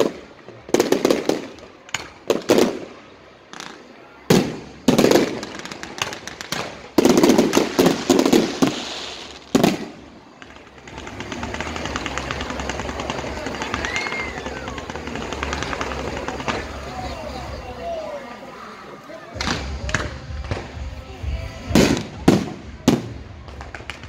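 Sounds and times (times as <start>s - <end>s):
fireworks bangs: 0.0s - 17.8s, 19.3s - 24.0s
steady low hiss: 0.0s - 24.0s.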